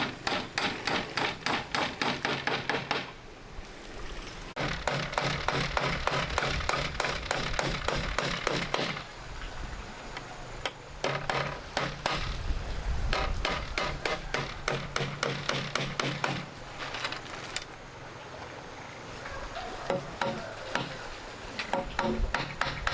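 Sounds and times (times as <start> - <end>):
sharp knocking strikes: 0.0 - 3.1, 10.6 - 12.4, 13.1 - 16.5.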